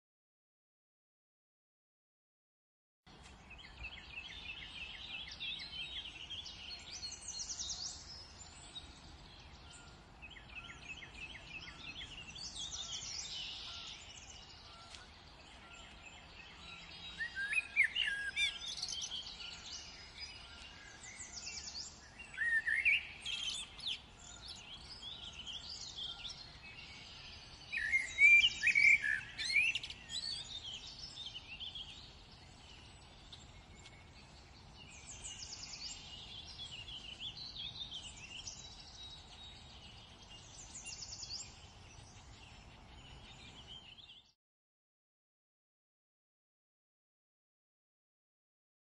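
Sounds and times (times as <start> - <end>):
songbird warbling: 17.2 - 34.3.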